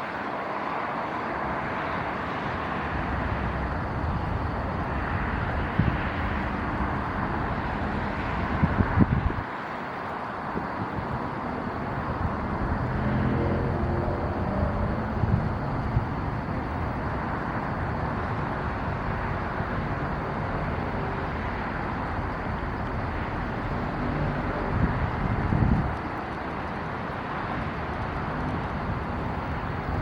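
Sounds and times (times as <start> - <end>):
traffic rumble: 0.0 - 30.0
vehicle engine passing: 12.3 - 15.8.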